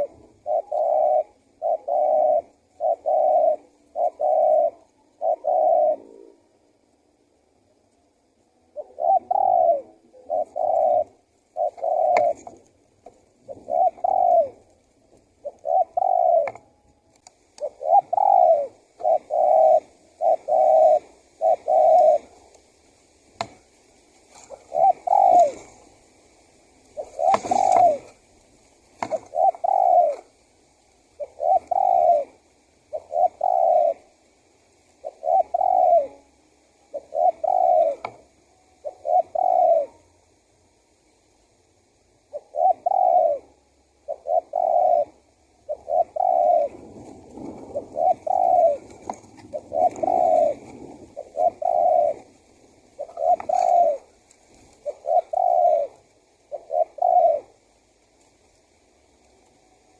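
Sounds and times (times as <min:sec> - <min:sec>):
dove cooing: 0:00.0 - 0:07.7, 0:08.4 - 0:40.5, 0:41.8 - 0:59.9
faint clicks: 0:16.4 - 0:17.7.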